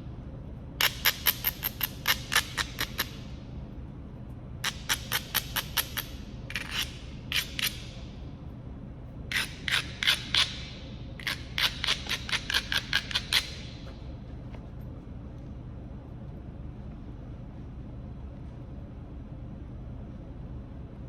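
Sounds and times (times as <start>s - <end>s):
sharp scraping strokes on stone: 4.7s - 7.9s, 9.3s - 10.6s, 11.2s - 13.6s.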